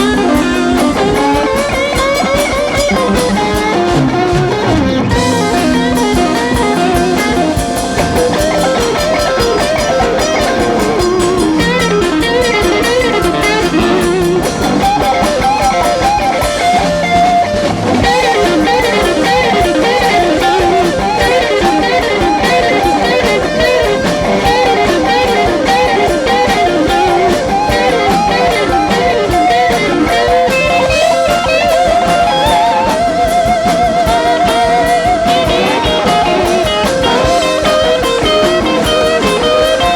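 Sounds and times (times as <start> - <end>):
blues-rock band playing: 0.0 - 39.9
drum kit: 0.0 - 39.9
lead electric guitar: 0.0 - 39.9.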